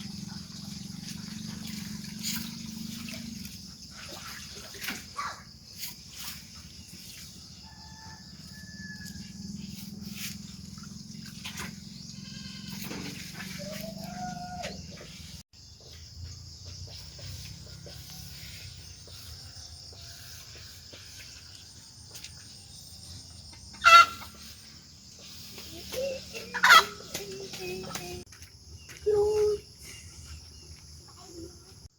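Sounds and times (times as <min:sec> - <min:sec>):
high insect drone: 0:00.0 - 0:15.0
chickens clucking: 0:23.7 - 0:24.6, 0:25.2 - 0:28.2.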